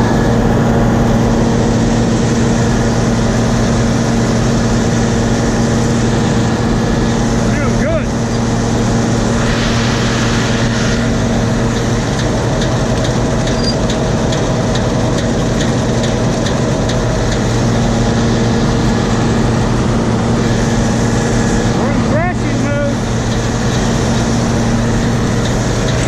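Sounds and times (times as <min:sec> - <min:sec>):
combine diesel engine drone: 0:00.0 - 0:26.0.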